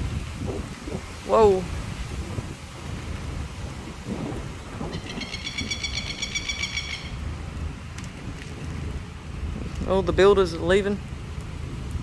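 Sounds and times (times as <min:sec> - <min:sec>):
thunder rumbling: 0:00.0 - 0:10.2
wind: 0:00.0 - 0:12.0
rapid high-pitched chattering call: 0:04.9 - 0:07.2.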